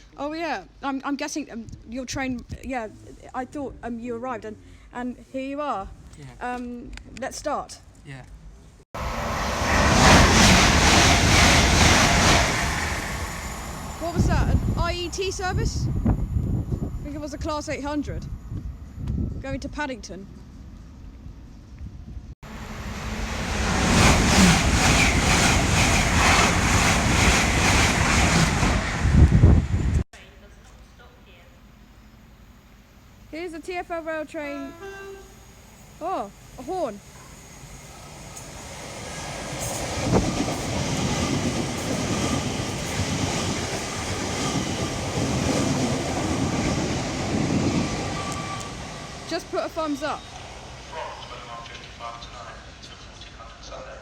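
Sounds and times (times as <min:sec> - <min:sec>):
train wheels rumbling on rails: 0:09.0 - 0:18.2, 0:22.4 - 0:30.0, 0:37.2 - 0:52.0.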